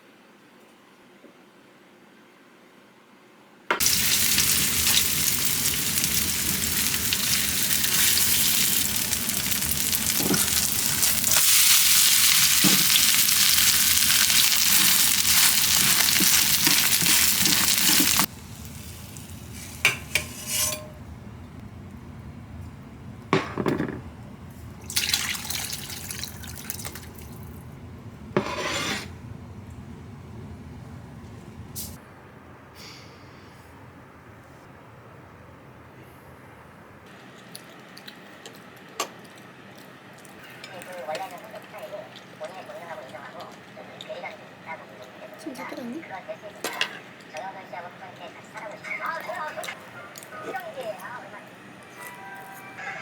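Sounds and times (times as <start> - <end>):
food sizzling in a pan: 3.8 - 21.2, 23.3 - 29.3
scraping: 19.4 - 21.6, 28.1 - 29.4.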